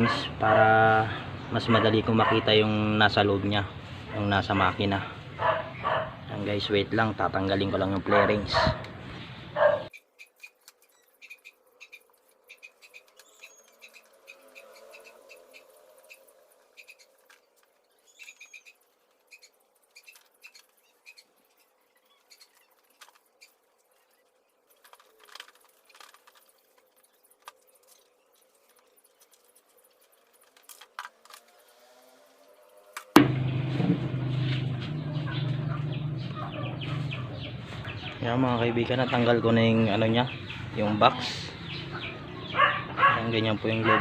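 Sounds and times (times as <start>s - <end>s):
birds chirping: 0.0s - 30.5s, 31.5s - 44.0s
loud steady noise with hum: 33.2s - 38.2s.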